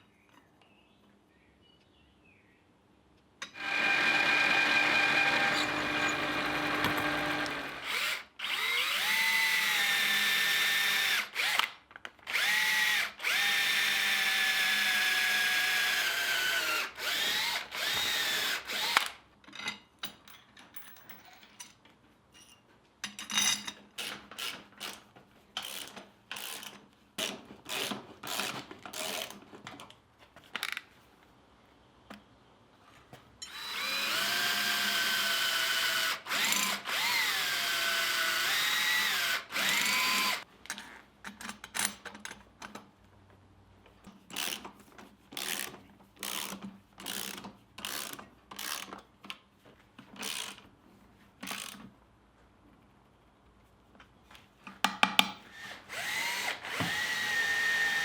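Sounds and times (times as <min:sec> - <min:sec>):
power drill motor whining: 0:03.6 - 0:11.7, 0:12.3 - 0:19.1, 0:33.5 - 0:40.4, 0:55.5 - 0:58.0.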